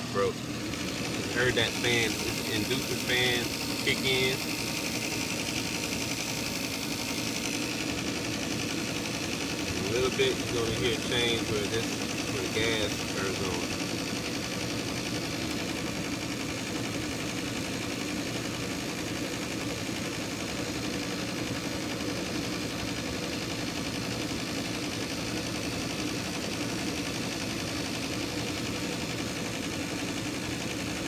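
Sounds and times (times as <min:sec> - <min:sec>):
furnace fan humming: 0:00.0 - 0:31.0.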